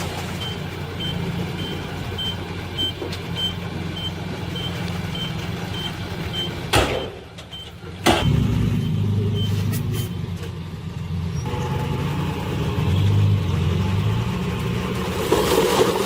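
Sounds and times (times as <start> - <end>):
truck engine low hum: 0.0 - 16.0
reversing alarm beeps: 0.4 - 10.2.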